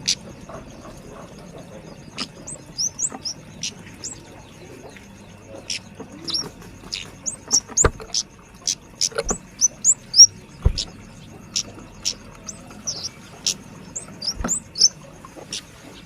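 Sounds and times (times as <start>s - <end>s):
bird calling sharp high chips: 2.2s - 4.2s, 5.7s - 10.9s, 11.6s - 15.0s
soft low thumps: 9.2s - 11.2s.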